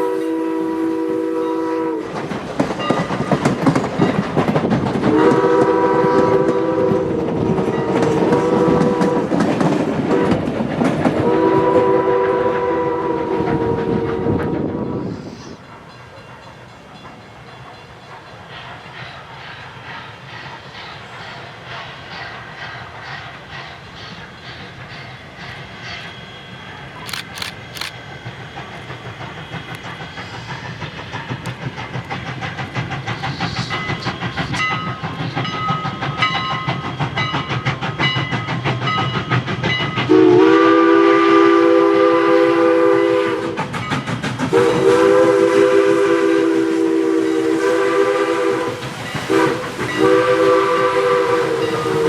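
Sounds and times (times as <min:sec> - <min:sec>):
train chime whistle blasts: 0:00.0 - 0:02.1, 0:05.1 - 0:09.2, 0:11.2 - 0:15.2, 0:40.1 - 0:43.6, 0:44.5 - 0:52.0
steam locomotive rail clatter: 0:00.0 - 0:52.0.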